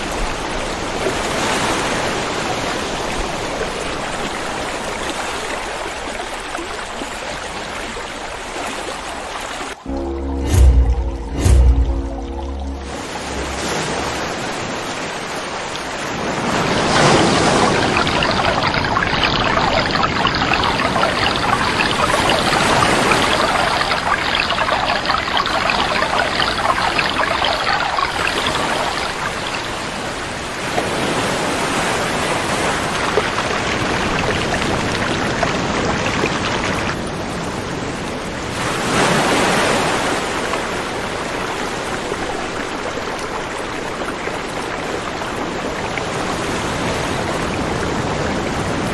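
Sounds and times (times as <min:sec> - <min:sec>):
river water rushing: 0:07.8 - 0:37.6.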